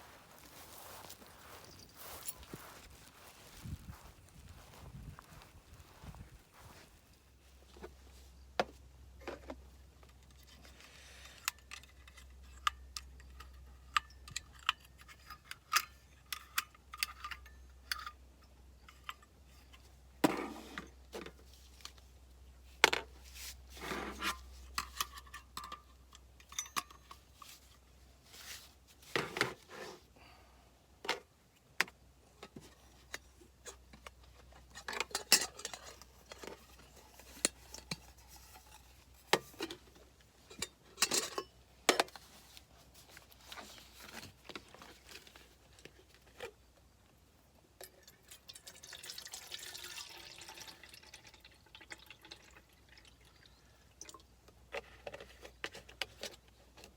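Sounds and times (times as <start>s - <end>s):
rustling: 0.0s - 7.6s
clicks and clinks of hard objects: 10.2s - 19.8s, 24.2s - 27.5s, 32.4s - 42.3s.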